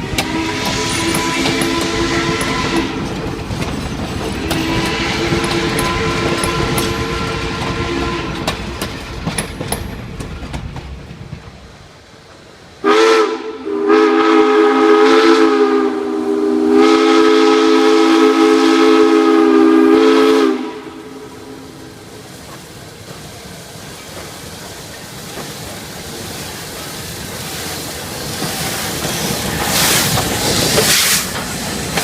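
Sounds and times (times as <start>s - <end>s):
steam locomotive chime whistle: 0.0s - 3.2s, 4.3s - 8.8s, 12.8s - 21.8s
train wheels clicking over rail joints: 0.0s - 11.9s, 22.0s - 32.0s.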